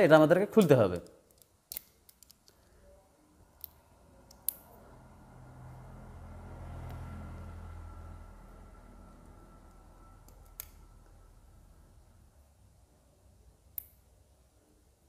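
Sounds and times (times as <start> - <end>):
faint low hum: 0.1 - 15.0
hand tool clicks: 0.6 - 2.6.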